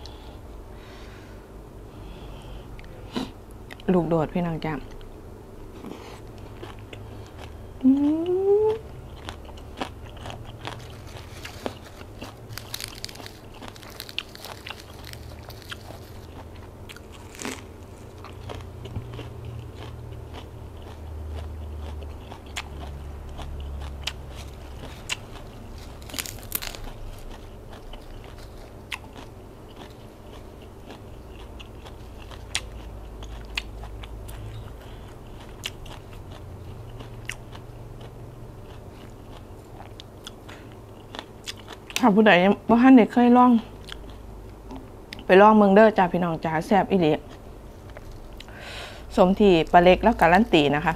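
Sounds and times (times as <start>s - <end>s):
person chewing crunchy food: 4.9s - 42.1s, 43.7s - 45.3s, 47.2s - 48.6s.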